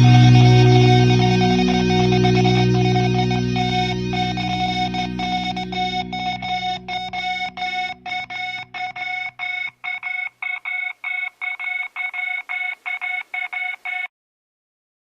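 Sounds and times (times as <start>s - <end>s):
organ-backed music: 0.0s - 9.3s
rapid electronic beeps: 0.0s - 14.1s.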